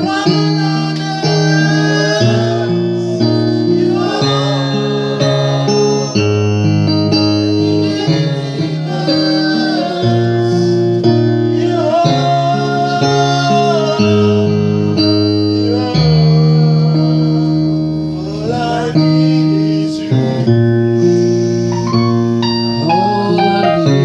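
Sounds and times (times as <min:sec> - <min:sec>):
person singing: 0:00.0 - 0:15.0, 0:21.7 - 0:24.0
guitar chords: 0:00.0 - 0:24.0.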